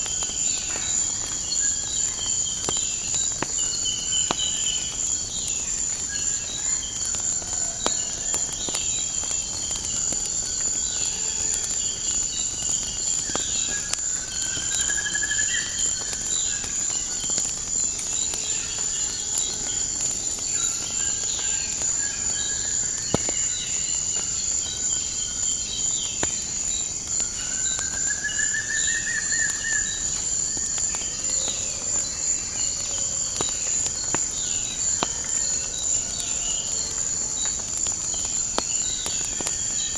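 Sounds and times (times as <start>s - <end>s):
cricket chorus: 0.0s - 39.9s
wood fire crackling: 0.0s - 39.9s
birds chirping: 17.3s - 23.5s.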